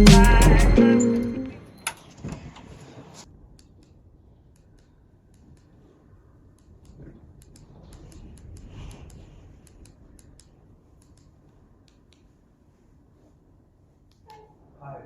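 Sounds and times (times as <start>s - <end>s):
light irregular clicks: 3.6s - 12.4s.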